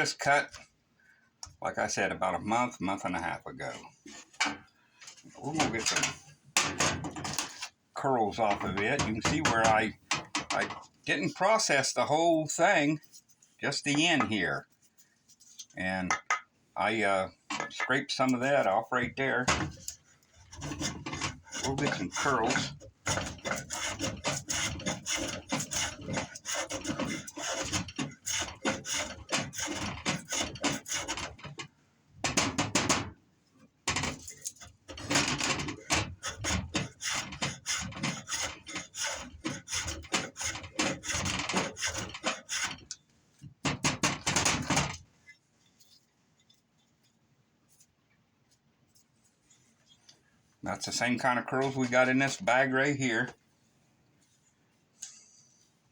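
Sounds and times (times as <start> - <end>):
blade scraping wood: 8.2 - 11.7, 18.3 - 33.1, 33.9 - 43.0.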